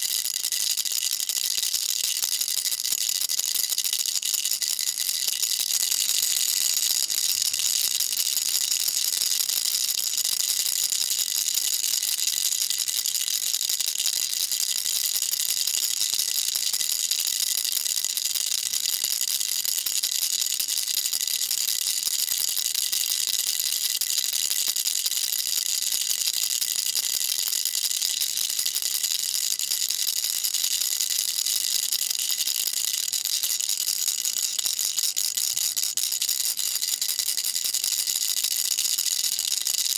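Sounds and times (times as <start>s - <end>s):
baby rattle shaken: 1.3s - 16.7s.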